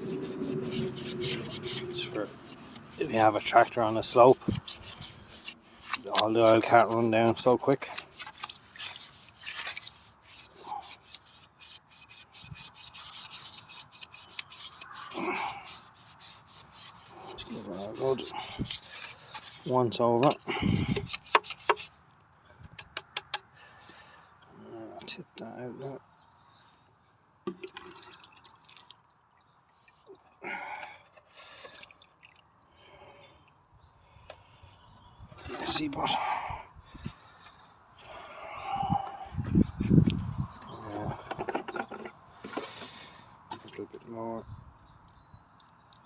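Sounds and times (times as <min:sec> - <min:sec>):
rapid scrubbing strokes: 0:00.0 - 0:19.8, 0:20.7 - 0:21.9
liquid splashing and dripping: 0:27.6 - 0:30.4.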